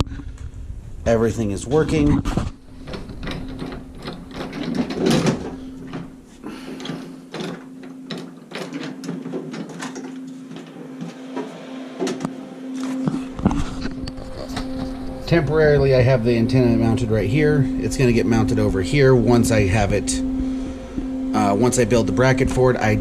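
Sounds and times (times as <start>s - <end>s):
soda machine humming: 0.0s - 23.0s
handling clicks and knocks: 2.2s - 12.4s.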